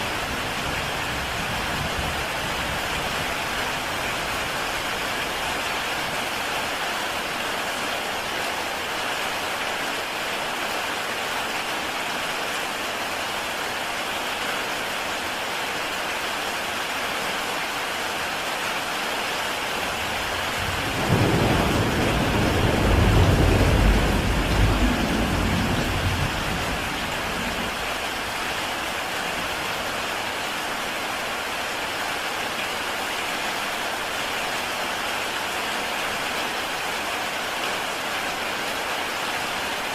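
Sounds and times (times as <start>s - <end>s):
heavy rain on a tile roof: 0.0s - 39.9s
thunder clap rumbling: 19.9s - 28.0s.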